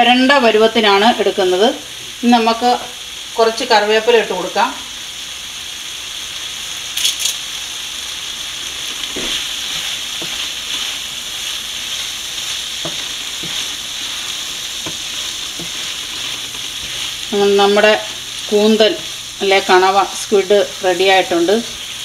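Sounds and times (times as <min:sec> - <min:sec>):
food sizzling in a frying pan: 0:00.0 - 0:22.0
wooden spatula stirring: 0:08.7 - 0:21.2
spatula knocking on pan: 0:09.1 - 0:10.8, 0:12.8 - 0:14.2, 0:14.8 - 0:17.0.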